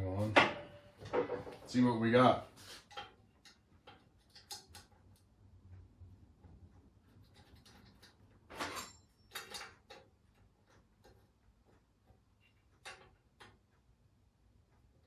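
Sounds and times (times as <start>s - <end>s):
faint metal clicks and clatters: 2.8s - 13.9s.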